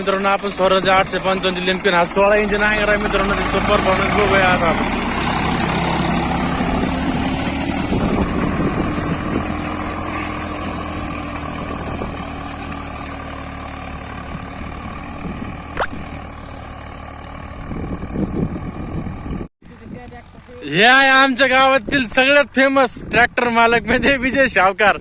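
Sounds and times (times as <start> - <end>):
tractor diesel engine running: 0.0 - 24.7
sharp click: 15.8 - 16.0.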